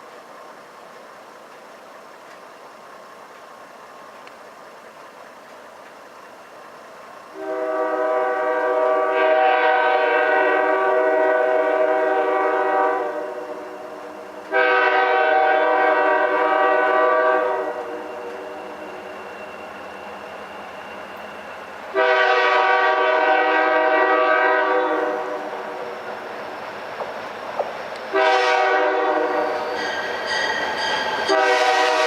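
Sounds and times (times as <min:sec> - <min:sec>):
locomotive engine running: 0:00.0 - 0:09.2
locomotive air horn blasts: 0:07.4 - 0:18.6, 0:21.9 - 0:25.8, 0:28.1 - 0:30.0, 0:31.3 - 0:32.0.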